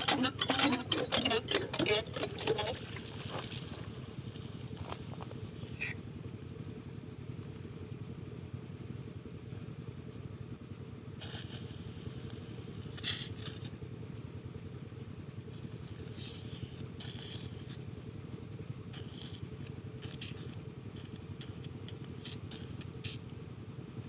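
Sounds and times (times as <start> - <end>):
scraping and clicking noises: 0.0 - 6.0
diesel engine driving water pump: 0.0 - 24.0.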